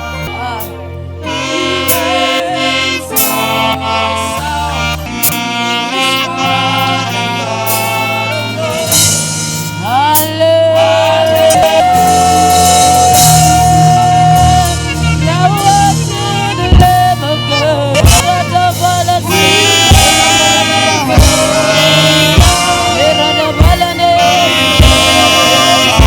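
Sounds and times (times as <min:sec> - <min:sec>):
bending lead melody: 0:00.0 - 0:26.0
gospel band music: 0:00.0 - 0:26.0
sustained bass: 0:00.0 - 0:26.0
drum kit strikes: 0:07.7 - 0:10.6, 0:11.2 - 0:26.0.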